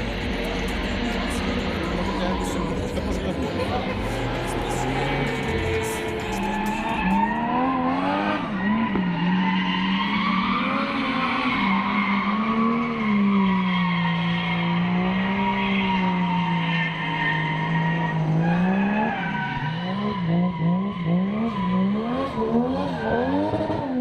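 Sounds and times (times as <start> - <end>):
tyres squealing: 0.0 - 7.6
car engine at high revs: 0.0 - 24.0.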